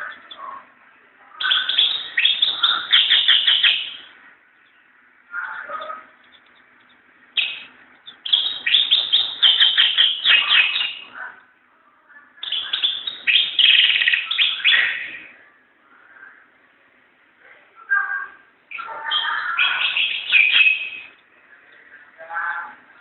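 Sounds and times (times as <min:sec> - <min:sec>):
bird twittering song: 0:00.0 - 0:00.7, 0:01.4 - 0:11.2, 0:12.4 - 0:15.4, 0:18.7 - 0:23.0
bird call: 0:12.4 - 0:15.3.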